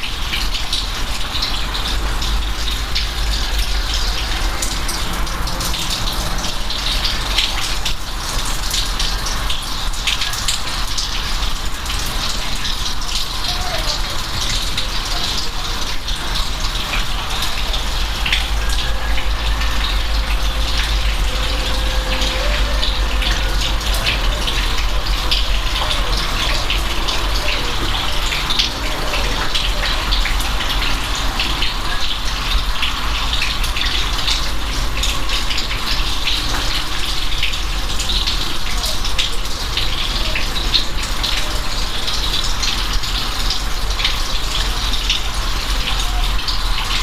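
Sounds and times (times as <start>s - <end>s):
rain hissing: 0.0s - 47.0s
low rumble: 17.8s - 25.6s.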